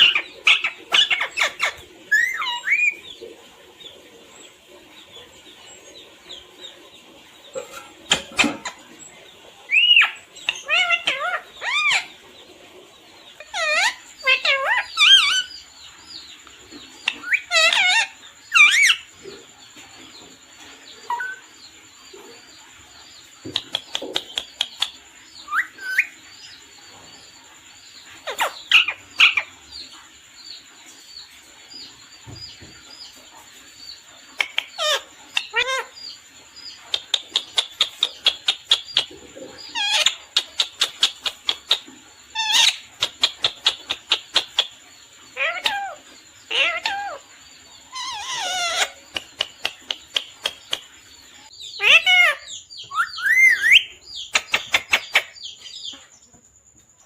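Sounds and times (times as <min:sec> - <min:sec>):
parrot chirping and squawking: 0:00.0 - 0:03.2, 0:07.5 - 0:08.9, 0:09.6 - 0:12.3, 0:13.3 - 0:15.7, 0:17.0 - 0:19.2, 0:21.0 - 0:21.5, 0:23.5 - 0:26.3, 0:28.2 - 0:29.8, 0:34.2 - 0:56.0.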